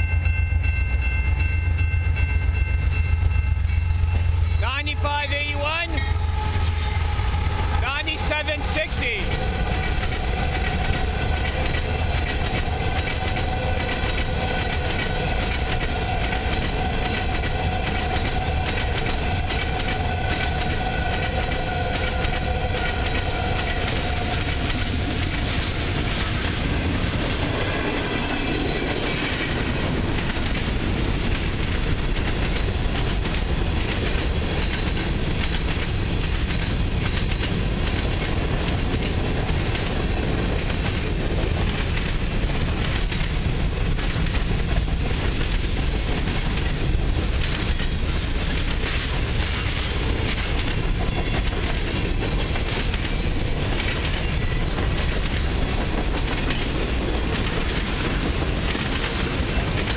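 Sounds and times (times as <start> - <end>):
steady high tone: 0.0 - 10.4
freight train wheels rumbling: 0.0 - 59.9.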